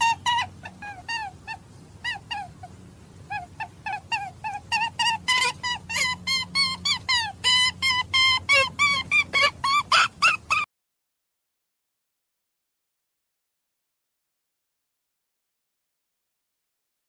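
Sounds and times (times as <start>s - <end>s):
faint low hum: 0.0s - 10.7s
high squeaky animal calls: 0.0s - 10.7s.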